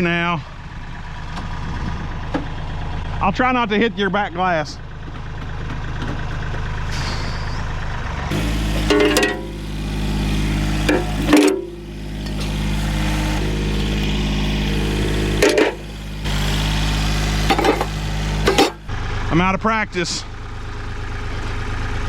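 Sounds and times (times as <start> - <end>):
tractor engine running: 0.0 - 7.0, 7.6 - 19.5
metal clanks of scrap: 6.9 - 9.7, 10.8 - 12.7, 15.3 - 16.4, 17.4 - 18.9.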